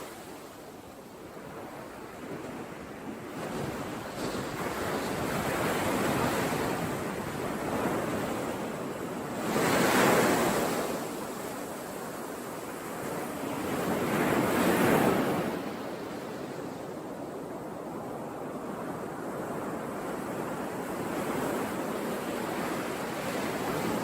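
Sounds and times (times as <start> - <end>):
ocean waves breaking: 1.4 - 16.9.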